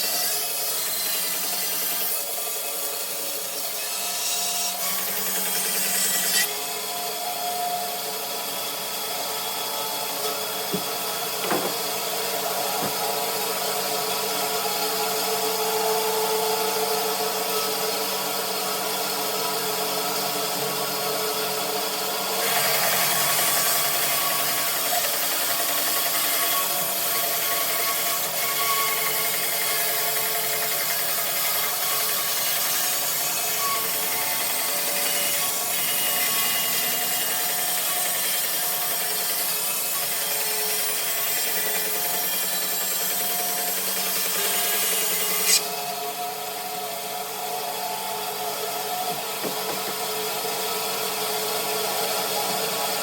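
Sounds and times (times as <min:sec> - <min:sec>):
bandsaw motor hum: 0:03.0 - 0:17.1.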